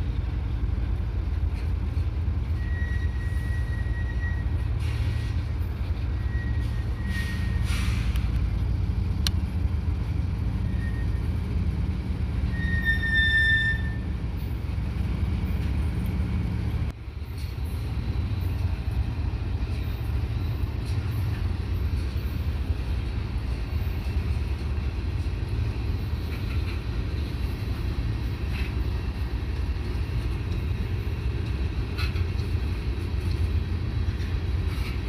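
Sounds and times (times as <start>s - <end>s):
diesel locomotive engines rumbling: 0.0s - 35.0s
high-pitched train squeal: 2.5s - 8.3s, 10.6s - 11.5s, 12.4s - 14.6s.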